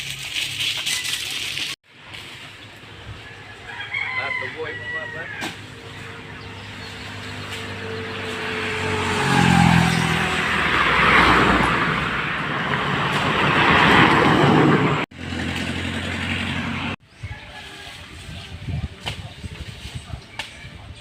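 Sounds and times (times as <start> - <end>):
vehicle rushing past: 5.3 - 17.0
vehicle engine approaching: 5.6 - 17.0.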